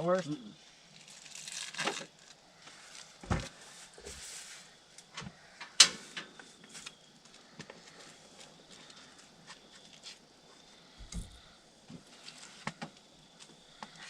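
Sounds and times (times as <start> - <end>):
rustling: 0.9 - 4.8.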